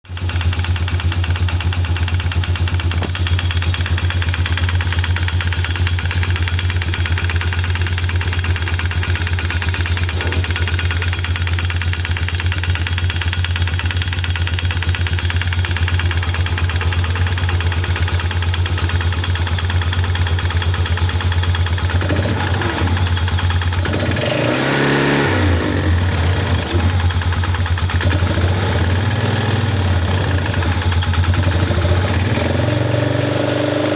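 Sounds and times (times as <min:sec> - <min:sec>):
atv engine idling: 0:00.1 - 0:33.9
strange clutch noise: 0:00.1 - 0:33.9
engine revving: 0:09.3 - 0:11.3, 0:15.8 - 0:33.9.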